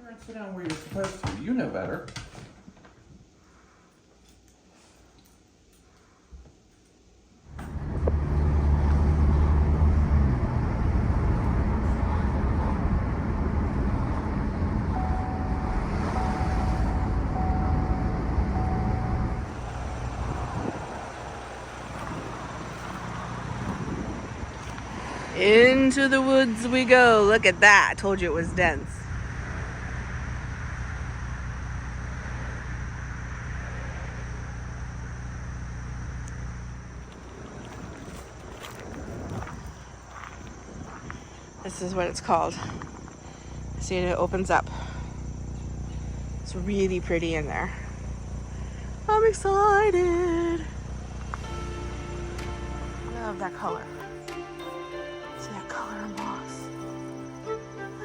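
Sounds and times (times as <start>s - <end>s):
car engine and road noise: 7.4s - 58.0s
repeating warning tone: 14.9s - 20.8s.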